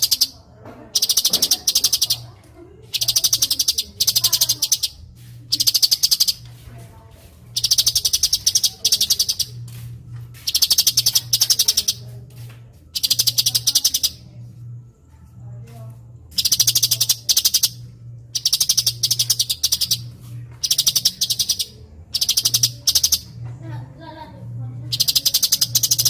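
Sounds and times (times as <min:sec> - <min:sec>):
bird singing fast high notes: 0:07.6 - 0:09.5, 0:16.4 - 0:17.8, 0:18.4 - 0:20.0, 0:20.6 - 0:23.3
low steady hum: 0:21.6 - 0:25.0.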